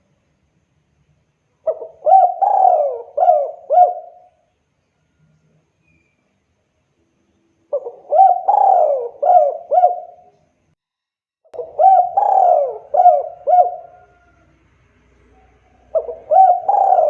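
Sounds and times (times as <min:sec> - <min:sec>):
dove cooing: 0:01.6 - 0:04.4, 0:07.7 - 0:10.4, 0:11.6 - 0:14.6, 0:15.2 - 0:17.0.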